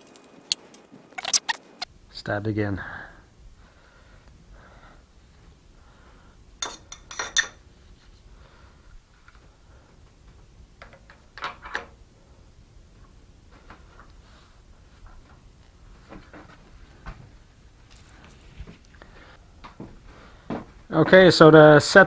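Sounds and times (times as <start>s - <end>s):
metallic clinks and knocks: 6.6s - 7.6s
faint shop background: 6.6s - 8.2s.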